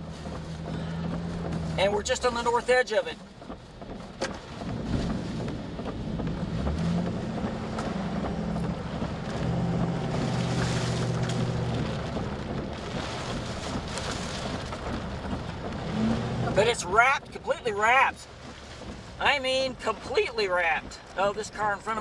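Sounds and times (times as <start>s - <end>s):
engine and road hum: 0.0s - 22.0s
rain noise: 0.0s - 22.0s
storm wind: 4.3s - 21.2s.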